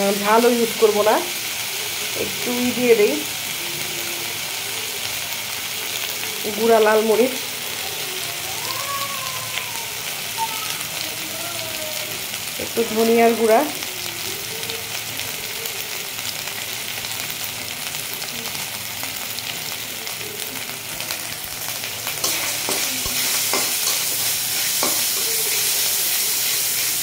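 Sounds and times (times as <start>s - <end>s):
food sizzling in oil: 0.0s - 27.0s
spatula scraping pan: 22.0s - 26.9s.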